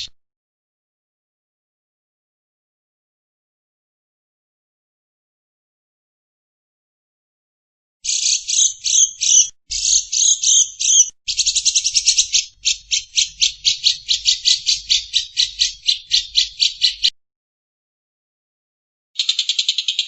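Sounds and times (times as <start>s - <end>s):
bird buzzy chatter: 8.1s - 17.1s.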